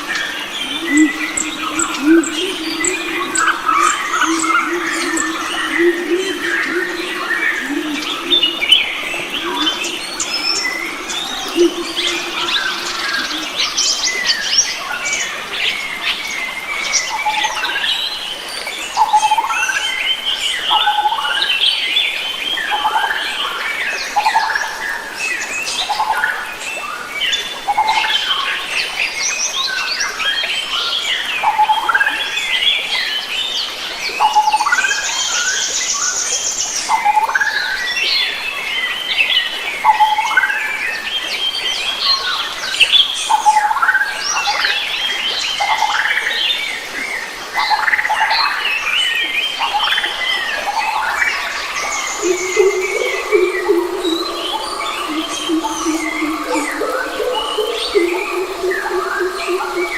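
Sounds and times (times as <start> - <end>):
birds chirping and calling: 0.0 - 14.8, 50.7 - 59.9.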